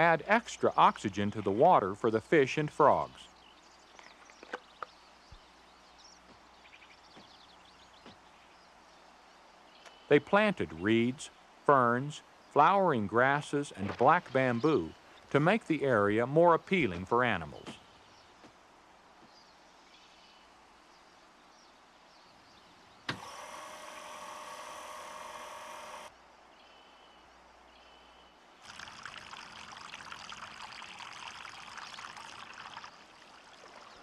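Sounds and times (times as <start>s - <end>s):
water pouring into pond: 0.0s - 3.2s, 28.6s - 34.0s.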